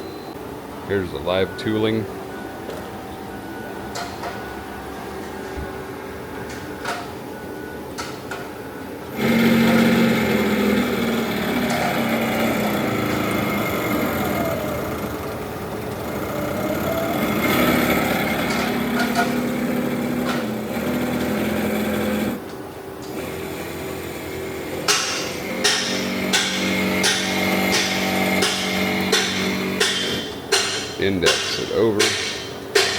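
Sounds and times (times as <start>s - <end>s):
lathe drive motor whining: 9.1s - 22.4s, 23.1s - 30.3s.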